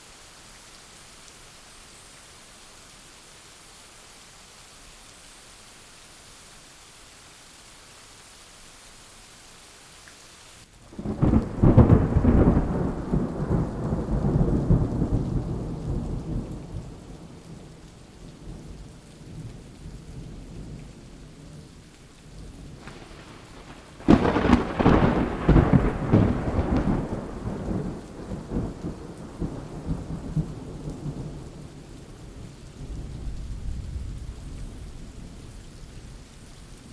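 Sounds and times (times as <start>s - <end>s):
steady rain hissing: 0.0s - 36.9s
thunder rumbling: 10.9s - 21.7s, 22.5s - 35.9s.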